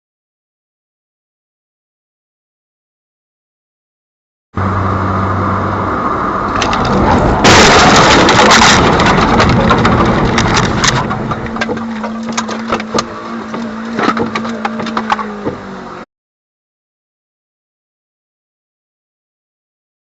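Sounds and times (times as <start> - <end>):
engine and road noise: 4.6 - 16.1
vehicle crash: 5.9 - 15.6
cracks and clatter: 6.5 - 15.6.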